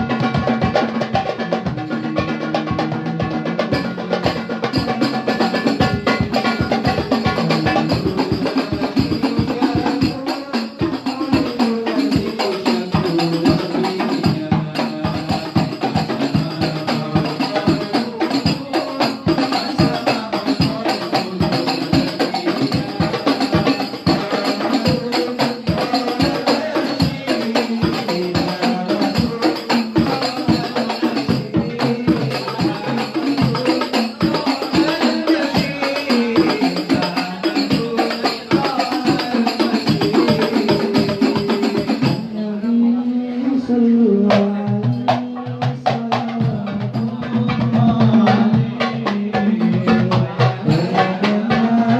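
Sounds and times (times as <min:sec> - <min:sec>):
darbuka drumming: 0:00.0 - 0:42.6, 0:43.6 - 0:51.9
tambourine jingling: 0:04.7 - 0:42.3.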